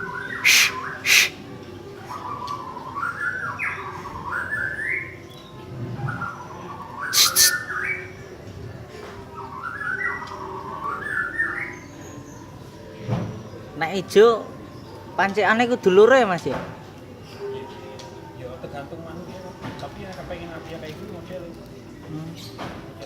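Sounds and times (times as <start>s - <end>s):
bird warbling song: 0.1s - 1.4s, 7.0s - 8.1s.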